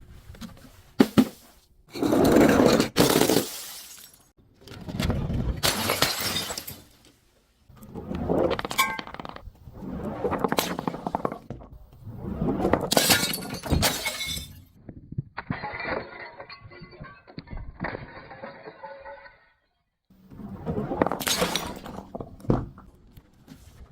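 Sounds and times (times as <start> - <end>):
glass bottles crunching and shattering: 2.8 - 4.3, 5.6 - 7.0, 12.9 - 14.7, 15.4 - 19.6.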